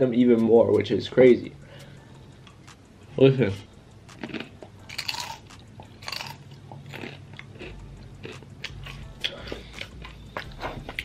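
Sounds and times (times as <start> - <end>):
chips crunching while chewed: 4.1 - 11.0.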